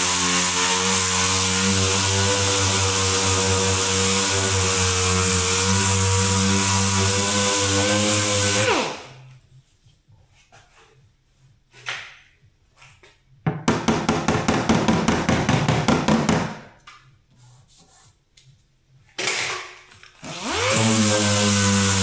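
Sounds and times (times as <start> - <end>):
power tool motor running: 0.0 - 9.2, 20.2 - 22.0.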